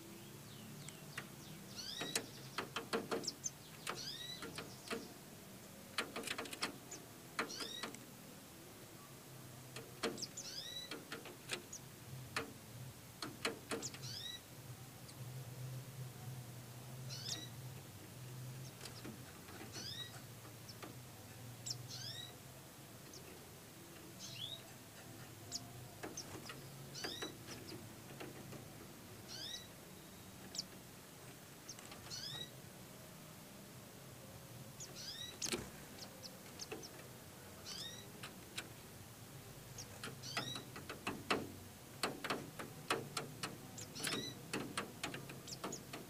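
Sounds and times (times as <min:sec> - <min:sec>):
nestlings cheeping: 0:00.8 - 0:05.2, 0:06.0 - 0:08.0, 0:09.8 - 0:12.0, 0:13.2 - 0:14.5, 0:18.6 - 0:20.9, 0:21.6 - 0:22.4, 0:24.1 - 0:32.6, 0:34.7 - 0:39.0, 0:39.6 - 0:46.0
sharp clicks: 0:01.9 - 0:05.1, 0:05.9 - 0:08.0, 0:09.7 - 0:12.5, 0:39.8 - 0:46.0.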